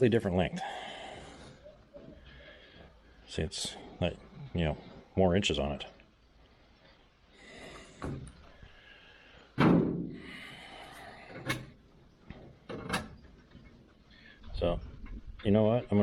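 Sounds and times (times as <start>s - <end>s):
heavy thump: 9.6s - 10.3s.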